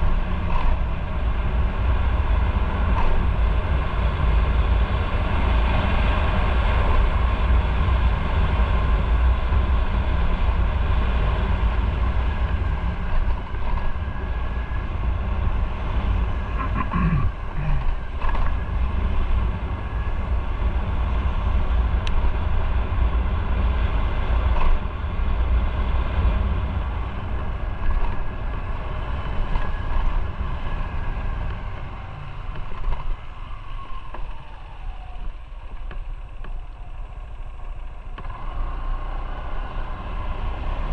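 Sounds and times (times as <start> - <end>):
wind rumble on microphone: 0.0 - 40.9.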